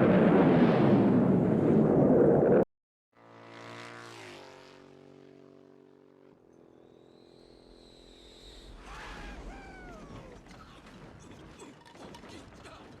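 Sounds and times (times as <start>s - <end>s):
aircraft engine drone: 3.2s - 8.8s
faint high whine: 5.4s - 8.9s.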